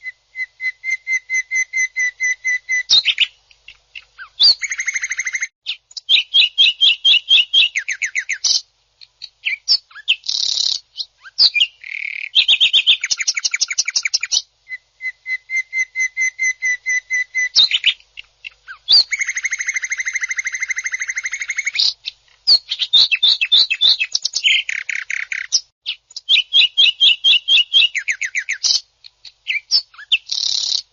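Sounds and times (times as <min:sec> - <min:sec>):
bird singing rapid trills: 0:29.4 - 0:30.9.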